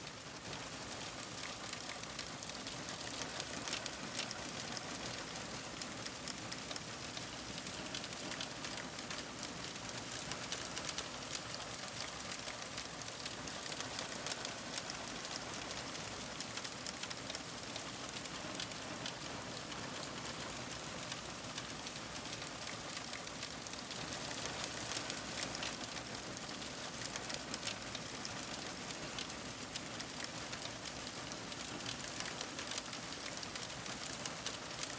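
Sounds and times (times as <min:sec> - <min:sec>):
fire crackling: 0:22.2 - 0:27.7.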